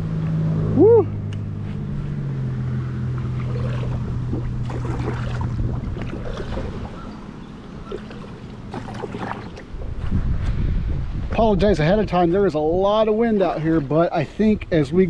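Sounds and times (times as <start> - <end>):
steady low hum: 0.0 - 15.0
kayak paddle splashing: 2.9 - 10.0, 13.1 - 14.6
wind on microphone: 3.2 - 15.0.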